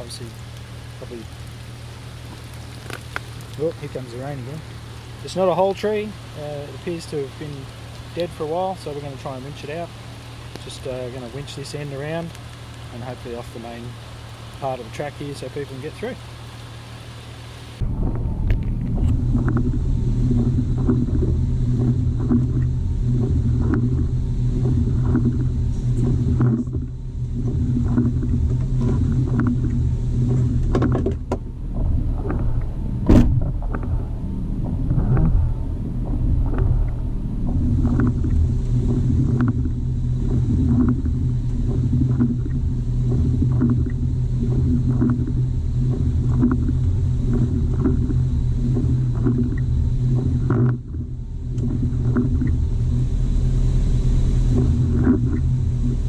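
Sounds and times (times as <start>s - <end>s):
faint ticks: 2.2s - 3.7s, 6.9s - 8.5s, 10.4s - 14.8s
electric winch humming: 3.5s - 56.0s
sharp knock: 33.0s - 33.9s.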